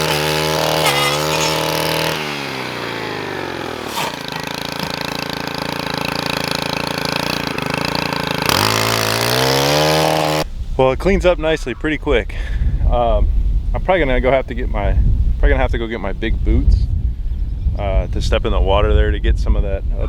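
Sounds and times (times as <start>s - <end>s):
small petrol engine revving and idling: 0.0s - 10.5s.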